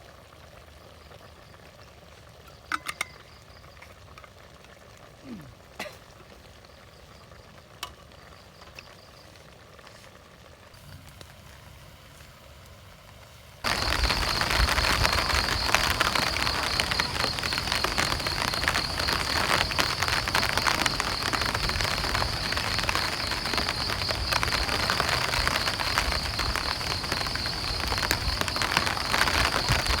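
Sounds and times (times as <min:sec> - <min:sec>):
heavy rain: 0:12.8 - 0:30.0.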